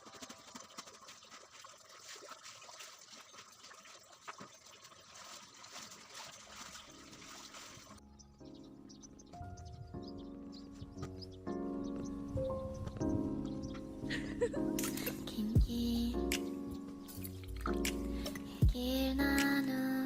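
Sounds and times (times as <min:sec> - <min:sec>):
water trickling: 0:00.0 - 0:18.8
soft music: 0:06.4 - 0:20.0.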